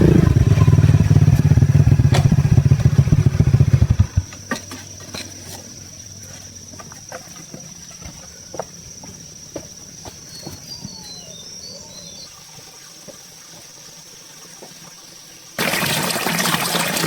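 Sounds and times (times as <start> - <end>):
small bird chirps: 10.1 - 12.4.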